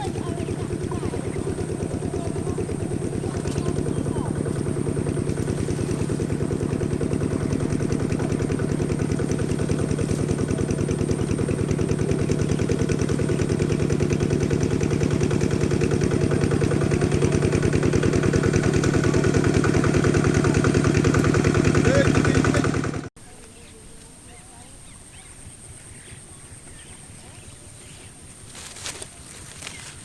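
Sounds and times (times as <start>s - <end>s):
engine running with pulsing beat: 0.0s - 23.1s.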